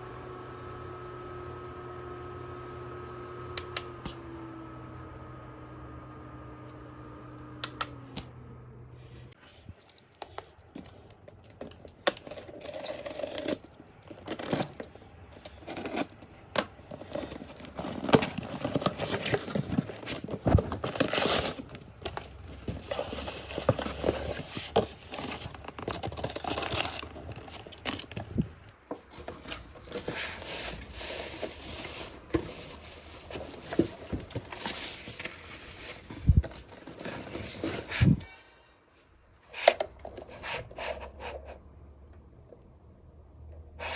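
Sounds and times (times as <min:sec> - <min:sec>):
packaging crinkling and tearing: 0:09.9 - 0:28.7.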